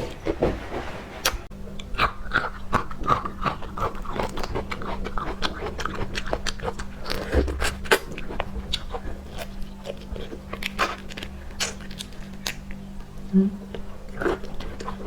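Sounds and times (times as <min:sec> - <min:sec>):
person biting and chewing: 0:01.2 - 0:12.7.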